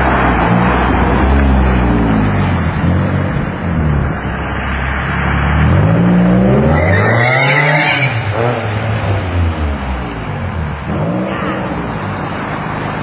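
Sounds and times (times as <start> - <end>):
high-pitched squeal: 5.6 - 8.4.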